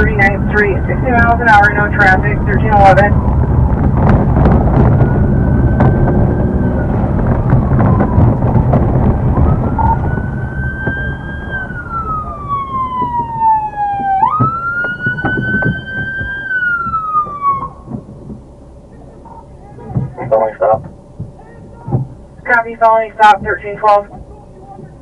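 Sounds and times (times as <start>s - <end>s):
police siren wailing: 0.0s - 18.1s
car driving fast rumble: 0.0s - 25.0s.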